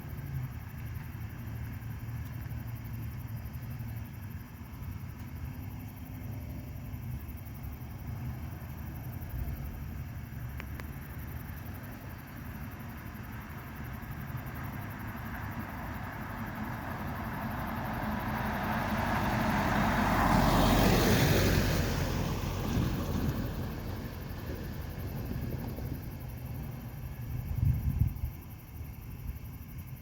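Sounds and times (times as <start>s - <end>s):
car passing by: 11.9s - 28.7s.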